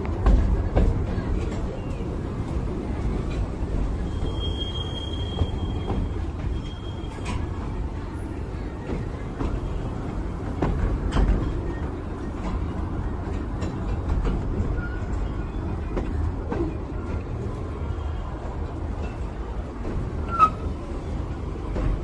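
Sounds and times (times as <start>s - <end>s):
miniature train rumbling on track: 0.0s - 22.0s
wheel squeal: 4.0s - 7.5s, 20.2s - 20.8s.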